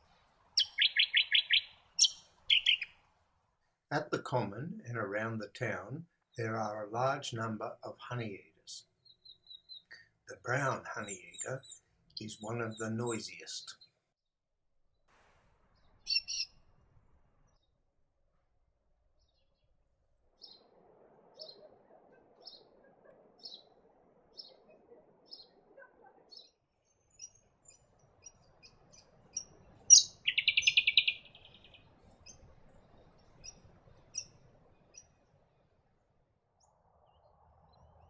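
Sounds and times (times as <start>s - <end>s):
bird calling with high notes and trill: 0.6s - 2.9s, 16.0s - 16.6s, 29.3s - 31.8s.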